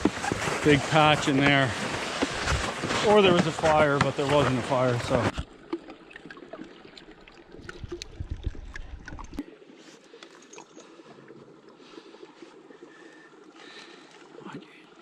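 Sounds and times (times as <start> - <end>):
footsteps crunching through wet snow: 0.0 - 5.4
sled scraping on snow: 0.0 - 5.4.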